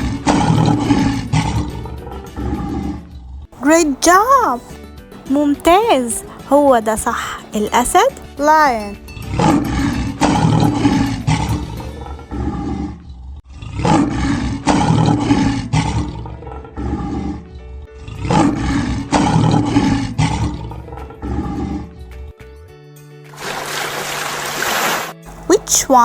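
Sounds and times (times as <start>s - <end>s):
light background music: 0.0s - 12.3s, 16.8s - 26.0s
lion roaring: 9.7s - 22.0s.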